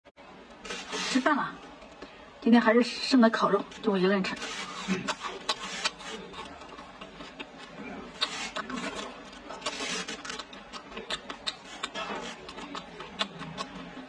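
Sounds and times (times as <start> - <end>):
chewing and mouth smacking: 4.6 - 14.0.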